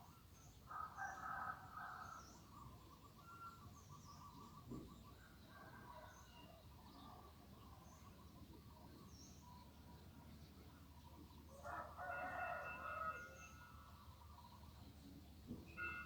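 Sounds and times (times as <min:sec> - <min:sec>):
faint birdsong: 0:00.0 - 0:16.0
rooster crowing: 0:11.6 - 0:13.6.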